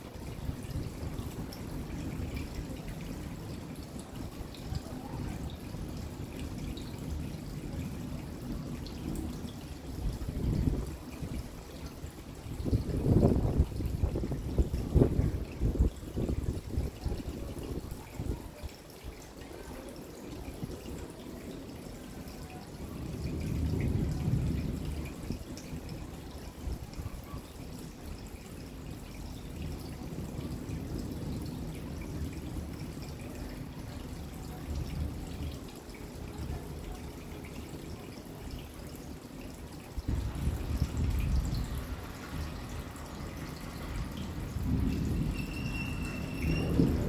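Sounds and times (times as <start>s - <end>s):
rain falling and dripping: 0.0s - 47.0s
distant thunder rumble: 40.1s - 47.0s.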